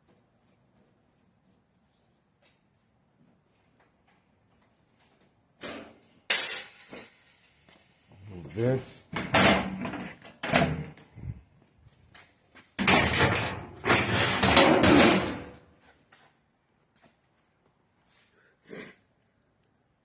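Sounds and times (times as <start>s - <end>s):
loud clattering of metal parts: 5.6s - 7.6s, 9.2s - 10.9s, 12.8s - 15.6s.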